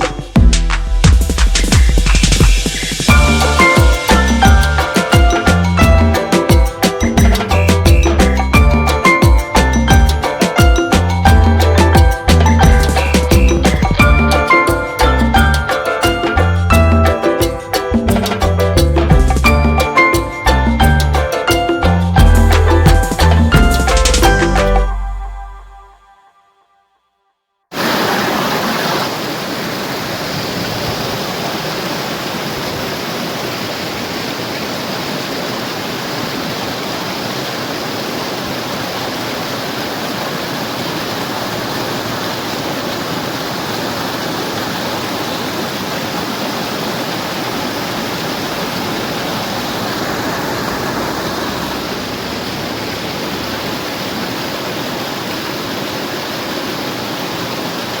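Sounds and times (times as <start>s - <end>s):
steady rushing noise: 27.7s - 58.0s.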